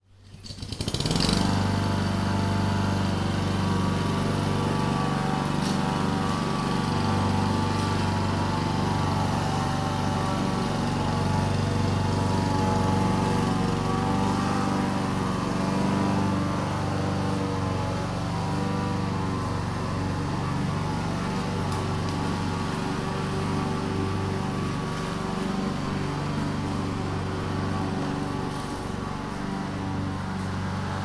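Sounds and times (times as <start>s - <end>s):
lawn mower engine: 0.1s - 31.0s.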